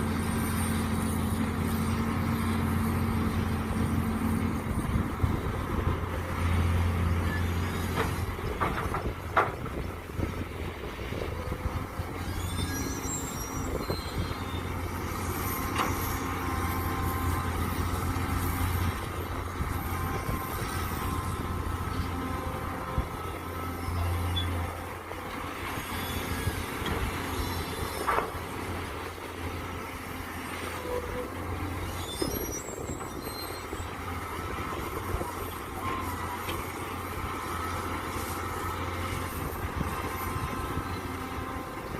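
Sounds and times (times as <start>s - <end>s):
excavator engine running: 0.0s - 41.9s
high squeaks from excavator arm: 6.4s - 9.2s, 11.4s - 28.9s, 30.4s - 41.5s.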